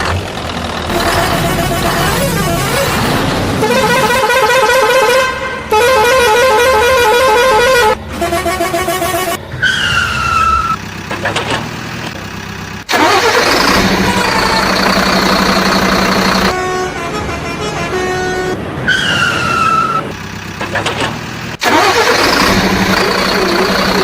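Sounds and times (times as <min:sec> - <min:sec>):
electronic toy horn tones: 0:00.9 - 0:03.0, 0:03.6 - 0:09.4.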